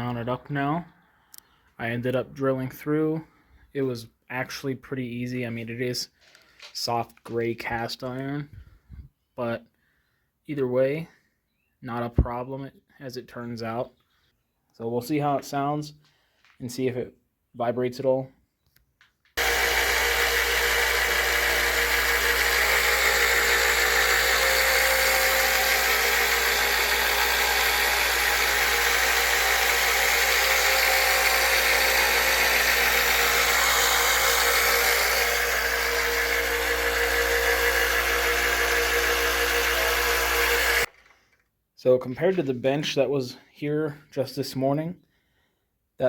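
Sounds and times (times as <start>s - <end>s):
belt sander running: 19.4s - 40.9s.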